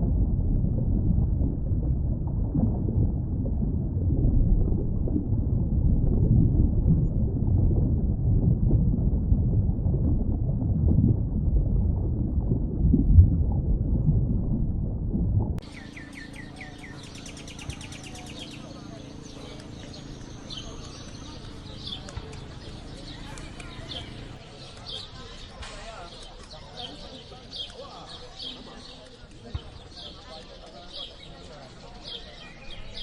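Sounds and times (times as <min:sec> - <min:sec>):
rushing water rumble: 0:00.0 - 0:28.2
high bird chirps: 0:15.6 - 0:33.0.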